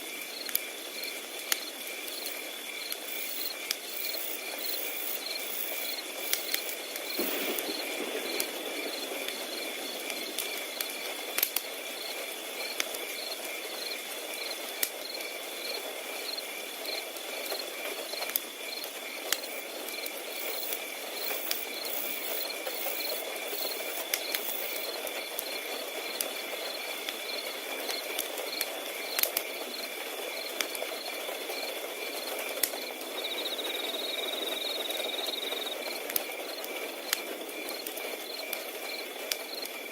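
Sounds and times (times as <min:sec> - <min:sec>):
crickets chirping: 0:00.0 - 0:39.9
cricket trilling: 0:00.2 - 0:39.9
wood fire crackling: 0:01.3 - 0:15.0, 0:17.1 - 0:26.4, 0:32.3 - 0:33.2.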